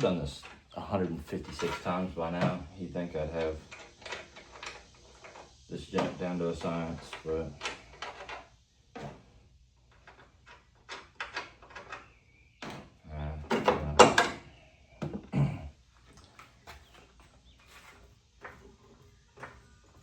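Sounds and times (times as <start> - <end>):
car parts and tools knocking: 13.5 - 15.4.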